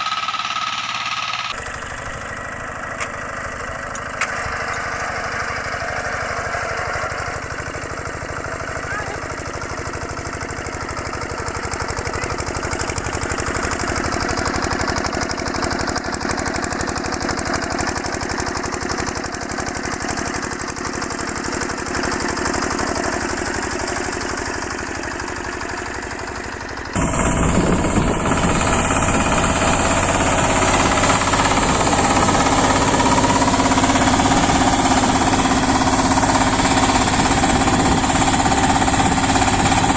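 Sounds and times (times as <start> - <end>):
louder engine running: 0.0 - 39.9
small tractor engines knocking: 0.0 - 39.9.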